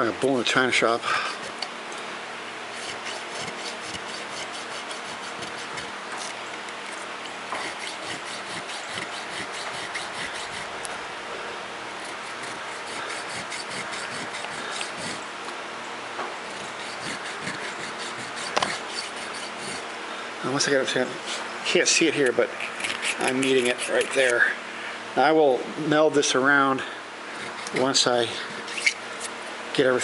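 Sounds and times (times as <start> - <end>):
hand file rasping on metal: 2.7 - 10.8, 12.0 - 15.2, 16.5 - 19.8, 20.8 - 21.4, 22.0 - 24.4, 27.4 - 29.4.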